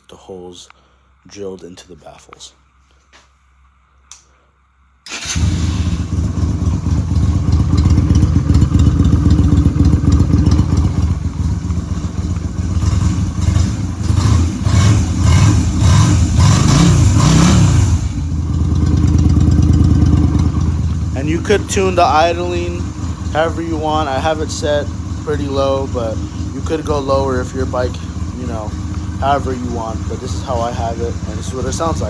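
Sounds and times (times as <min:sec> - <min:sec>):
motorcycle engine running and revving: 0:05.2 - 0:32.0.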